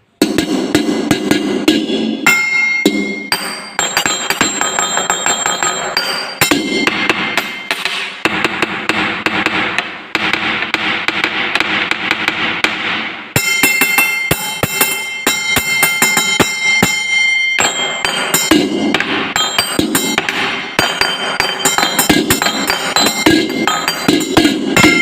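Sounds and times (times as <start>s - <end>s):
glasses struck with sharp taps: 0.2s - 9.6s, 13.4s - 25.0s
glasses ringing tones: 2.2s - 8.0s, 13.4s - 25.0s.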